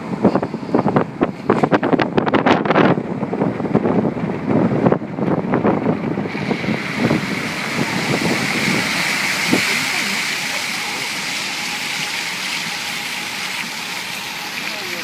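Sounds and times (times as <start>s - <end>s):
wind buffeting microphone: 0.0s - 14.5s
floodwater rushing: 5.5s - 15.0s.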